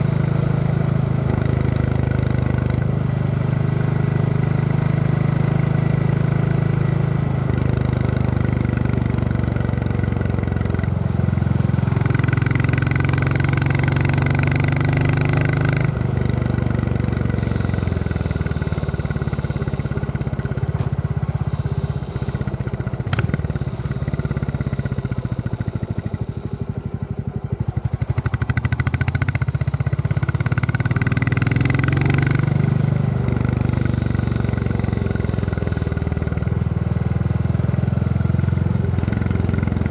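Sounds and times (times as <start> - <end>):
motorcycle engine thumping: 9.4 - 36.9.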